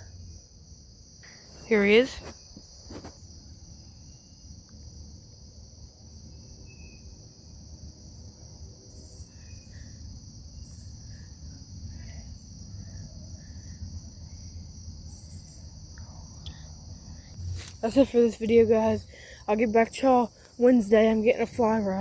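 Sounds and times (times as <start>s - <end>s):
high-pitched insect chorus: 0.0s - 22.0s
low rumble: 16.1s - 19.2s.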